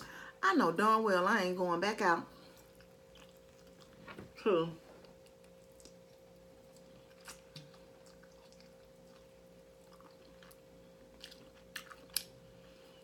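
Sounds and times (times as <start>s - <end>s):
faint steady hum: 0.0s - 13.0s
biting and chewing meat: 5.0s - 12.6s.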